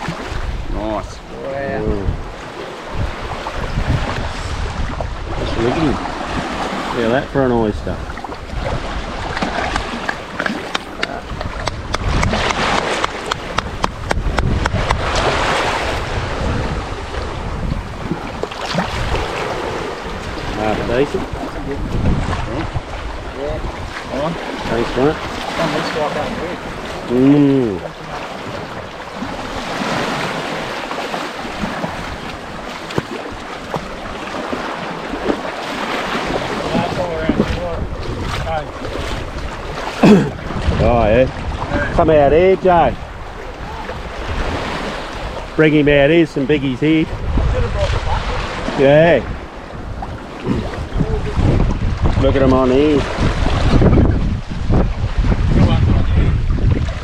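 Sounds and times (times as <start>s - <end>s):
waves washing on shore: 0.0s - 57.0s
wind: 0.0s - 57.0s
lapping water: 7.9s - 16.0s, 18.0s - 42.0s, 42.7s - 45.4s, 50.0s - 53.8s
sharp knocks: 9.7s - 15.2s.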